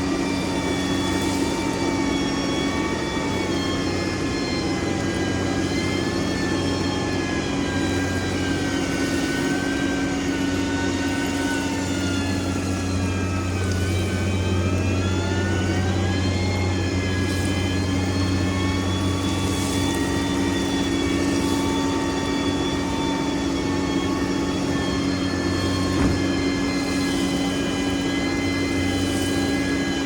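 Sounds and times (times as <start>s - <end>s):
diesel machine engine running: 0.0s - 30.0s
high whine: 0.0s - 30.0s
short knock: 26.0s - 26.4s.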